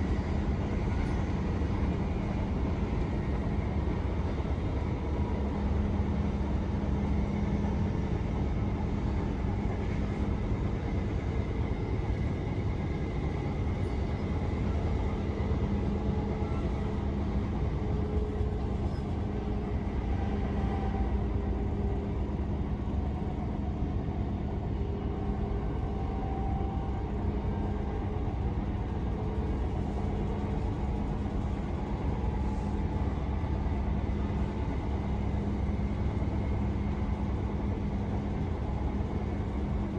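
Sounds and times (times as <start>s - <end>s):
electric train rumbling: 0.0s - 39.9s
faint whining tones: 0.0s - 39.9s.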